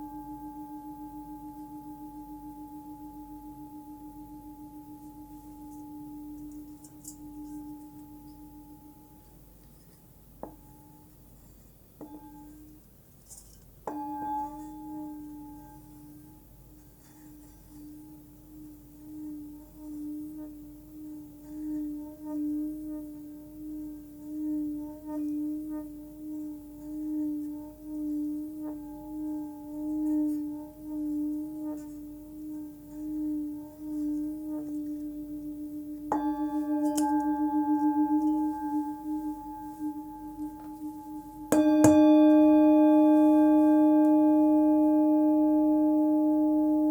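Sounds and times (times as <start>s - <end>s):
singing bowl ringing: 0.0s - 9.5s, 12.0s - 12.8s, 13.8s - 46.9s
singing bowl struck: 13.8s - 16.5s, 36.1s - 46.9s.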